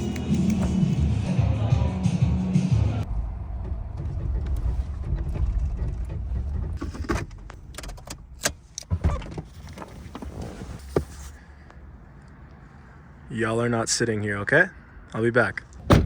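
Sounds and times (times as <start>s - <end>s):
car engine rumble inside cabin: 3.0s - 8.4s.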